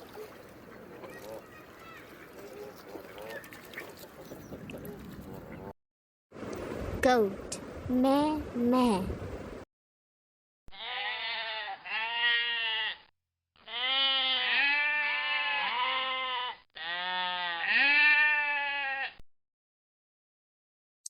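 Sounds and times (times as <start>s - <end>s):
goat bleating: 10.7s - 19.2s.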